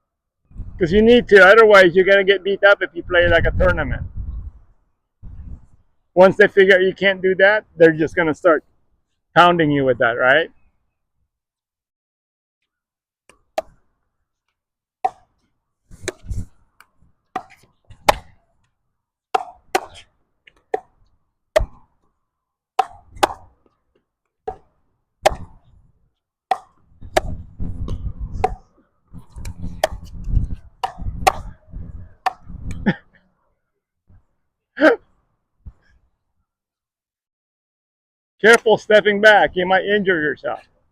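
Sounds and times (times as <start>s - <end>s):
wind rumbling on microphone: 0.4s - 2.0s, 2.8s - 5.9s, 15.9s - 17.1s, 26.9s - 33.0s
ball struck and bouncing: 13.3s - 13.8s, 15.0s - 15.4s, 16.0s - 18.4s, 19.3s - 22.0s, 22.8s - 23.8s, 24.4s - 25.7s, 26.5s - 31.6s, 32.2s - 32.8s.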